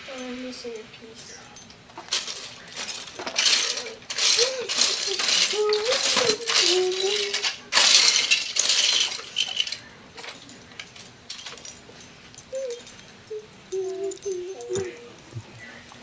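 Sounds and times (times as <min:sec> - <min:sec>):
plastic bricks clattering: 0:02.0 - 0:11.8
thin wavering whine: 0:11.8 - 0:16.0.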